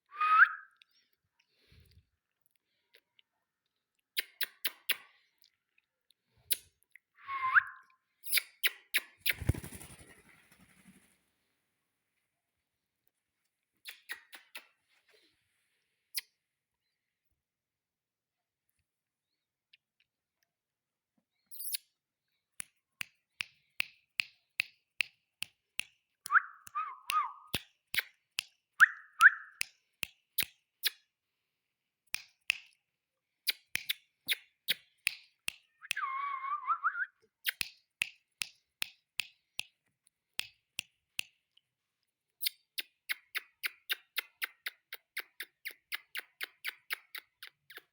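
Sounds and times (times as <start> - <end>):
parrot rising whistle: 7.2 - 7.8, 35.8 - 37.1.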